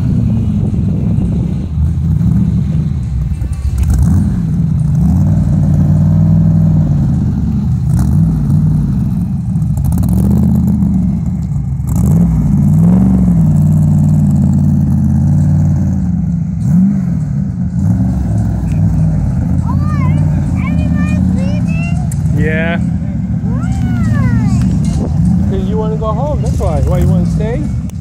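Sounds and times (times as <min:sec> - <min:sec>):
engine idling and revving: 0:00.0 - 0:28.0.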